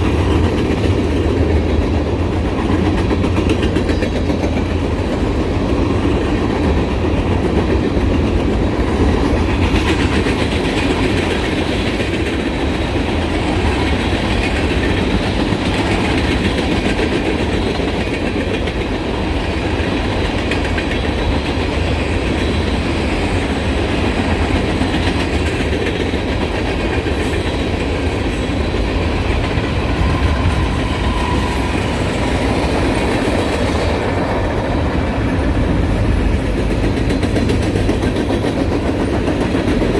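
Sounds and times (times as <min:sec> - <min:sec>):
wheels clicking over rail joints: 0:00.0 - 0:22.8
freight train rumbling past: 0:00.0 - 0:39.9.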